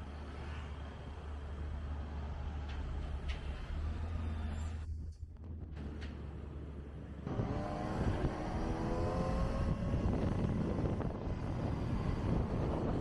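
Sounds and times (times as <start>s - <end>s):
motorcycle engine accelerating: 7.3s - 13.0s.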